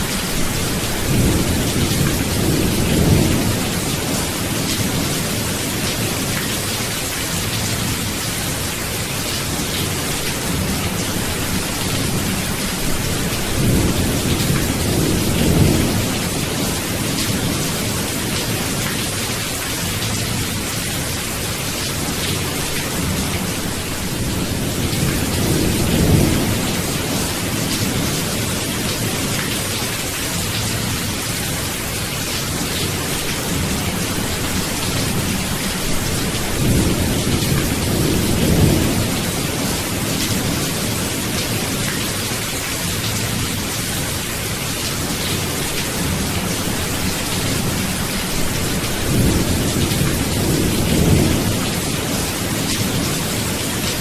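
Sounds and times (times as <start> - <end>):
heavy rain: 0.0 - 54.0
low rolling thunder: 10.5 - 18.7, 22.9 - 29.4, 33.5 - 41.7, 46.0 - 53.9.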